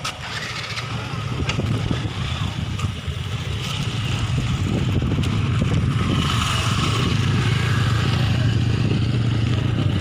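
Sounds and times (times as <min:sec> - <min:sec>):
motorcycle engine running: 0:00.0 - 0:10.0
road noise: 0:00.0 - 0:10.0
wind noise: 0:00.3 - 0:10.0.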